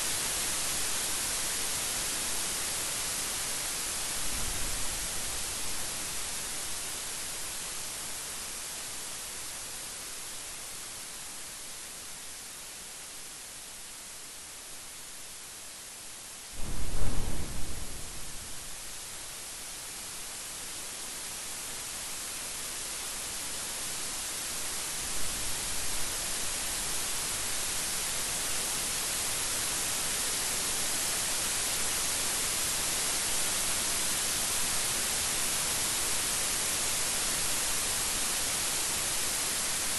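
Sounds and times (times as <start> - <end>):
rain hissing: 16.5 - 20.5
loud thunderclap: 16.6 - 19.0
faint thunder rumble: 16.6 - 19.2.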